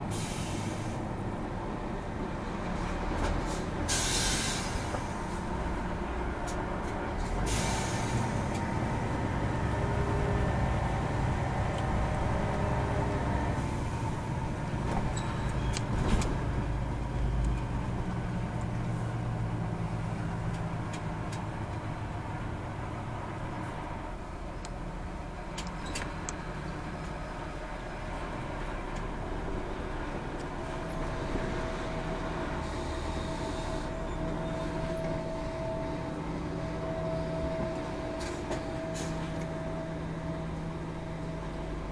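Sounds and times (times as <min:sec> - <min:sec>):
truck diesel engine running: 0:00.0 - 0:41.9
air brake hisses: 0:00.1 - 0:01.0, 0:03.5 - 0:05.3, 0:07.5 - 0:08.4.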